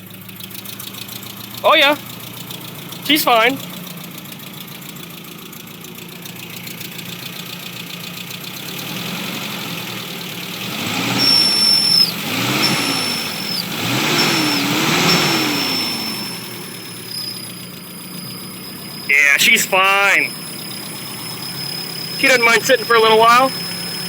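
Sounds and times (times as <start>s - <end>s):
engine idling and revving: 0.0s - 24.0s
thin high squeal: 11.2s - 18.9s, 20.2s - 24.0s.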